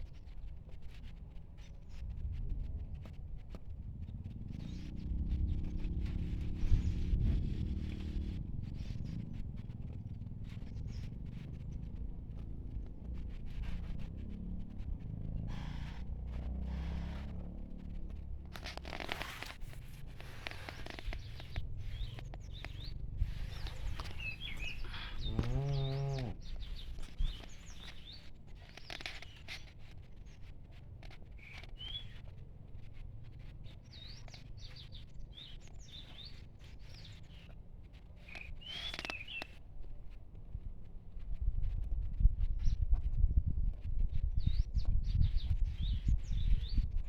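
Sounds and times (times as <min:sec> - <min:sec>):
small birds chirping: 0:04.5 - 0:39.6, 0:44.2 - 0:47.0
cow mooing: 0:24.5 - 0:26.5.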